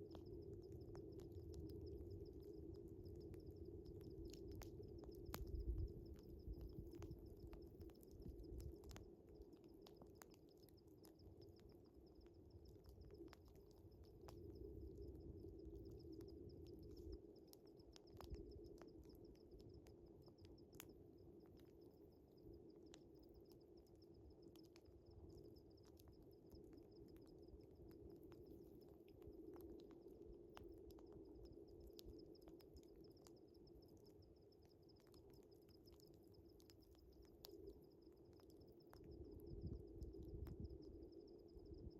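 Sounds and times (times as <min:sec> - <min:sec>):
wood fire crackling: 0:00.0 - 0:21.7
crickets chirping: 0:00.0 - 0:41.9.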